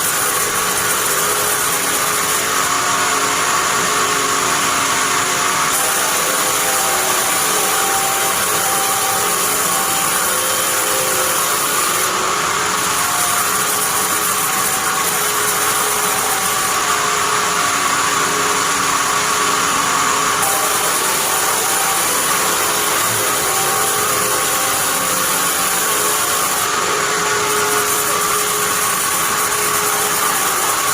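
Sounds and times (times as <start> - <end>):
band sawmill running: 0.0 - 30.9.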